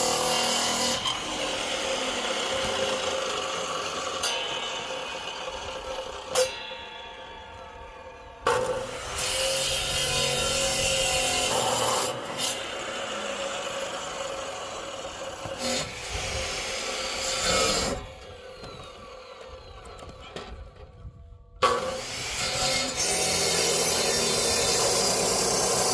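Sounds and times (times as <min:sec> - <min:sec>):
saw cutting firewood: 0:00.0 - 0:06.9, 0:08.4 - 0:20.6, 0:21.6 - 0:25.9.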